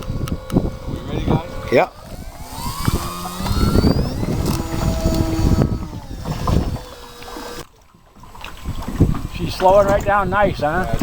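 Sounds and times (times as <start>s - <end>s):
model plane motor whining: 0.0s - 7.8s
wind buffeting microphone: 0.0s - 11.0s.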